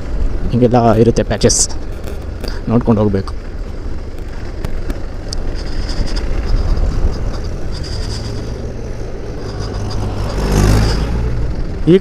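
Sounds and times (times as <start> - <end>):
road and wind rumble: 0.0 - 12.0
motorcycle engine running: 3.3 - 12.0.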